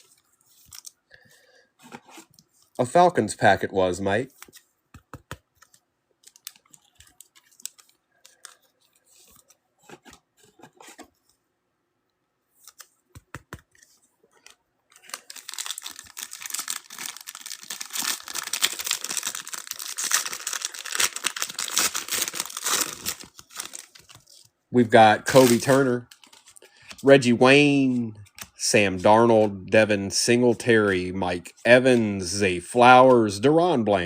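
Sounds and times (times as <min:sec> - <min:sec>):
foil wrapper tearing and crinkling: 0:15.0 - 0:24.3.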